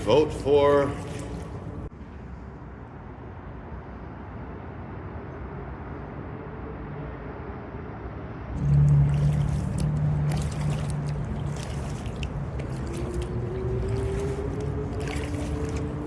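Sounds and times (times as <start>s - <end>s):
rumble of city traffic: 0.0s - 16.0s
vehicle hum: 8.4s - 16.0s.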